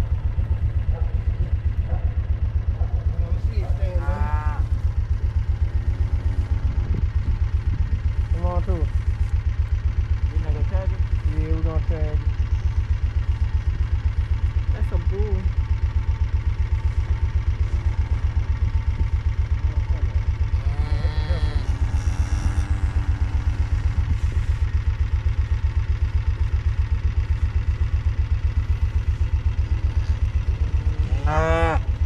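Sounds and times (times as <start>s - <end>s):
vehicle engine idling: 0.0s - 32.0s
cow mooing: 20.4s - 24.4s, 29.8s - 31.9s.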